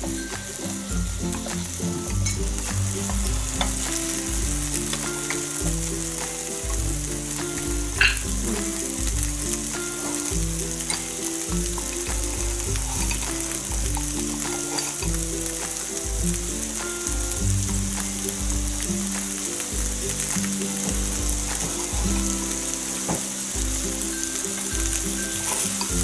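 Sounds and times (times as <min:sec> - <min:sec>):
low steady tones: 0:00.0 - 0:26.0
meat sizzling on grill: 0:00.0 - 0:26.0.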